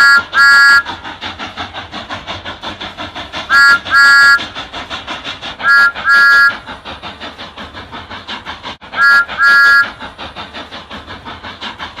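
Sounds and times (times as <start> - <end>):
steam locomotive whistle: 0.0 - 1.0, 3.5 - 4.5, 5.6 - 6.7, 8.9 - 10.0
locomotive chuffing: 0.0 - 12.0.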